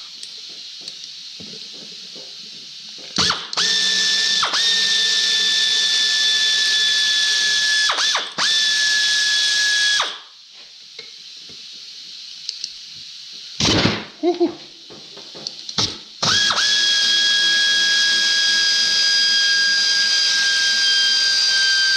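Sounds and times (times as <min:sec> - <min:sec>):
air ratchet whining: 0:03.2 - 0:10.3, 0:15.8 - 0:21.9.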